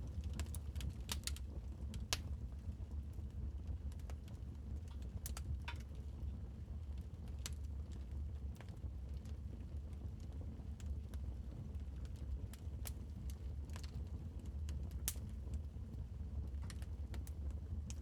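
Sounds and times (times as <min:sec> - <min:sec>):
wood fire crackling: 0:00.3 - 0:01.4.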